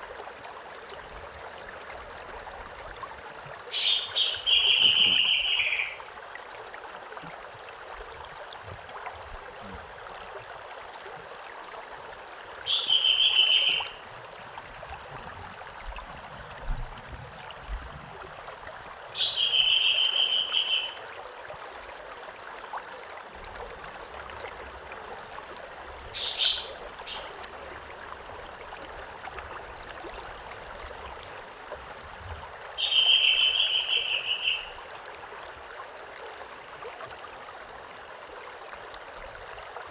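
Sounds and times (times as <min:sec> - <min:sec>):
stream running: 0:00.0 - 0:39.9
bird calling: 0:03.8 - 0:06.0, 0:12.7 - 0:14.0, 0:19.2 - 0:21.0, 0:26.2 - 0:27.6, 0:32.8 - 0:34.8.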